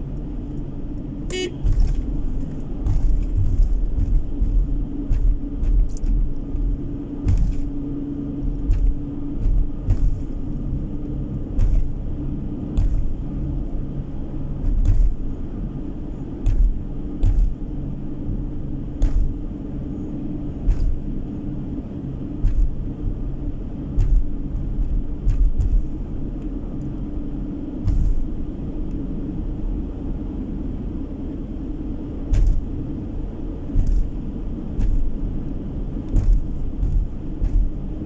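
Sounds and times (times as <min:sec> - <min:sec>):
car engine and tyre drone: 0:00.0 - 0:38.0
knocks from road bumps: 0:01.3 - 0:19.8, 0:20.4 - 0:21.4, 0:22.2 - 0:26.5, 0:27.8 - 0:28.5, 0:32.2 - 0:38.0.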